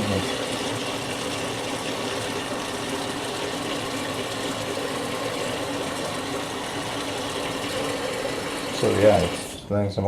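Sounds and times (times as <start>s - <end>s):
washing machine filling with water: 0.0s - 9.7s
faint machine hum: 0.0s - 10.0s.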